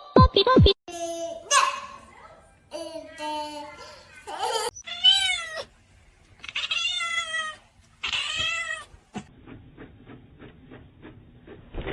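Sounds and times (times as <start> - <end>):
cat meowing: 4.8 - 5.7, 6.4 - 8.9.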